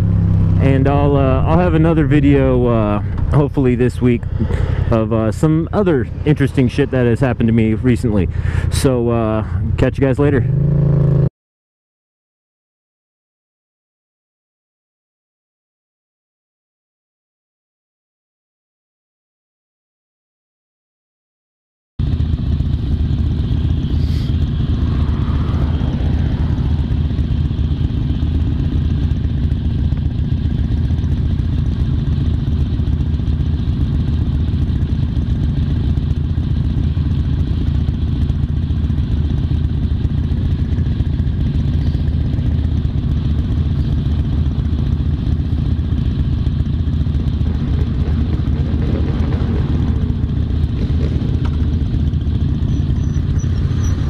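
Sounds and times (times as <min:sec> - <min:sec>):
constant rush of noise: 0:00.0 - 0:10.5, 0:22.1 - 0:54.0
motorcycle engine running: 0:00.0 - 0:11.3, 0:22.0 - 0:54.0.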